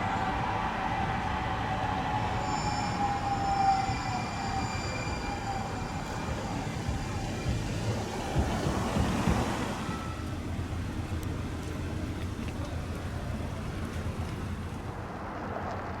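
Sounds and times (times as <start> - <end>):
train rumbling by: 0.0 - 16.0
thin wheel squeal: 2.1 - 8.2.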